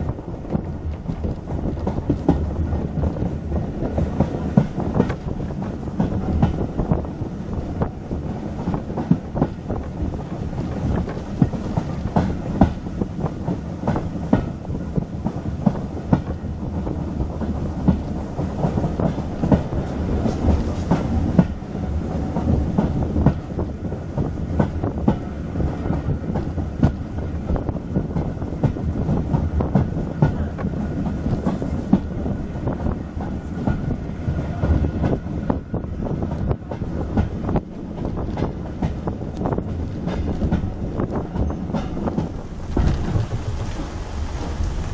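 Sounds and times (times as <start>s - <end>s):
train rumble from inside carriage: 0.0s - 44.9s
wheels clattering over track: 36.6s - 44.9s.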